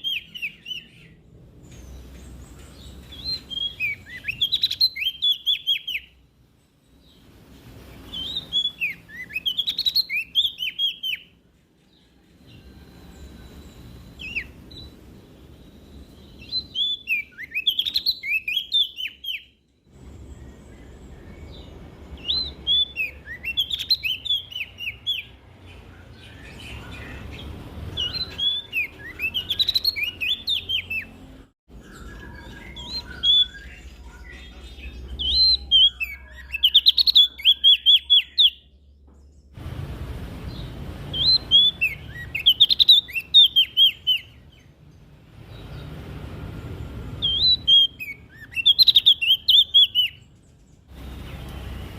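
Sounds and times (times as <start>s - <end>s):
leaf warbler singing: 0.0s - 51.9s
low rumble: 39.2s - 41.5s.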